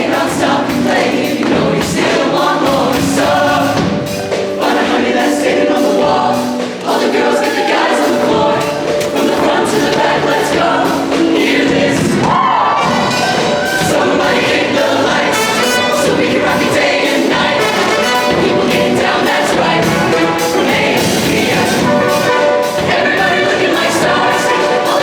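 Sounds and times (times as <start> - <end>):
choir singing pop song: 0.0 - 25.0
instrumental accompaniment with beat: 0.0 - 25.0.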